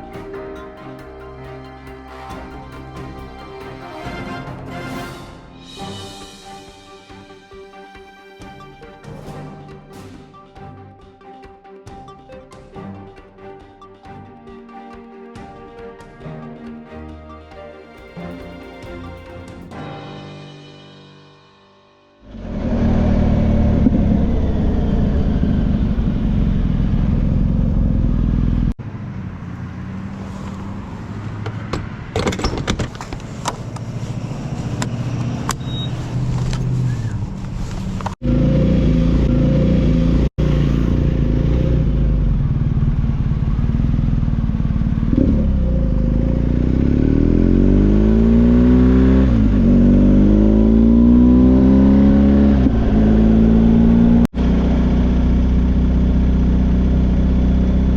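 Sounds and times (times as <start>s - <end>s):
motorcycle engine accelerating: 22.2s - 32.1s, 33.6s - 57.9s.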